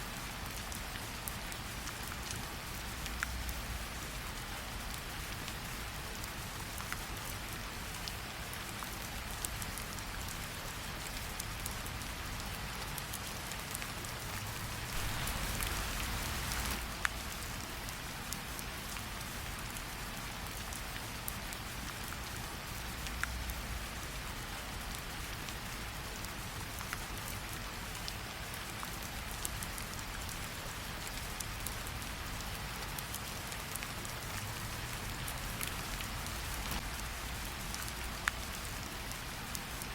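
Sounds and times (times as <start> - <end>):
steady rain falling: 0.0 - 39.9
wood fire crackling: 14.6 - 17.6.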